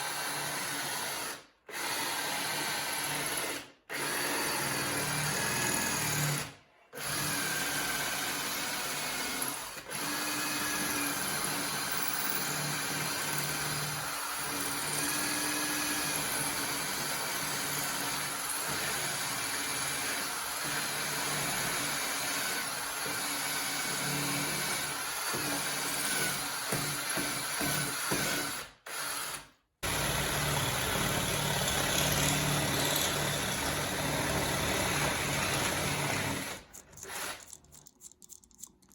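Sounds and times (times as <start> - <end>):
power tool running: 29.8 - 37.5.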